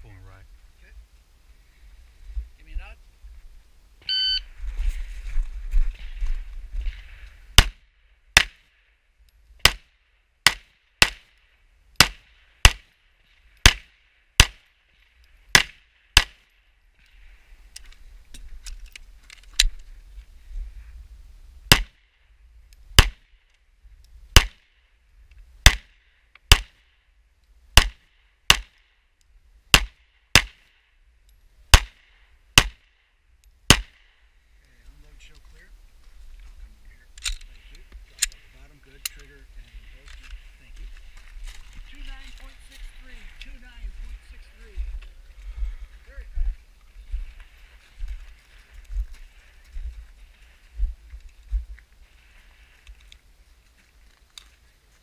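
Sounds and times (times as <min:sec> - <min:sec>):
pistol shots: 0:09.6 - 0:11.3, 0:13.6 - 0:14.6, 0:15.5 - 0:16.4, 0:21.7 - 0:22.0, 0:24.4 - 0:24.6, 0:25.7 - 0:25.9, 0:27.8 - 0:28.8, 0:29.7 - 0:30.6, 0:33.7 - 0:34.1.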